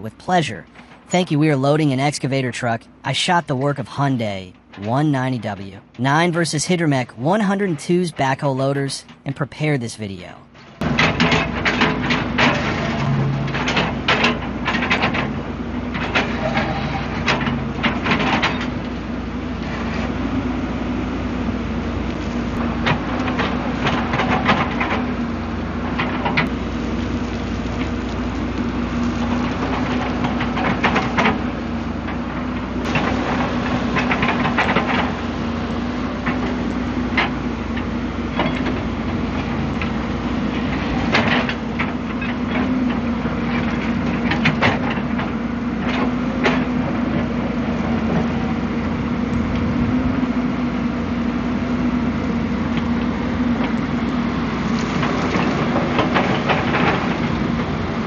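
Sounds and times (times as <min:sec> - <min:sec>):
diesel engine running: 0:10.8 - 0:58.0.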